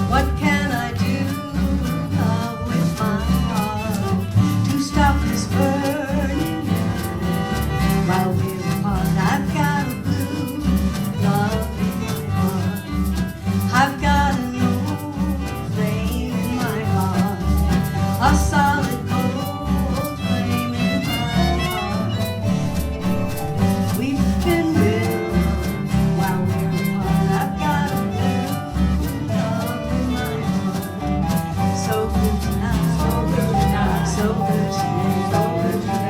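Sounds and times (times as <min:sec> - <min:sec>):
acoustic folk band playing: 0:00.0 - 0:36.0.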